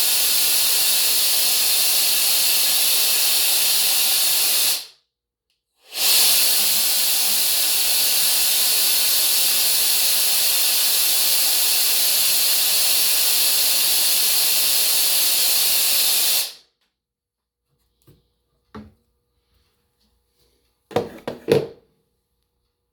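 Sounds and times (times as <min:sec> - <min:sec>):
compressed air engine hissing: 0:00.0 - 0:04.9, 0:05.8 - 0:16.7.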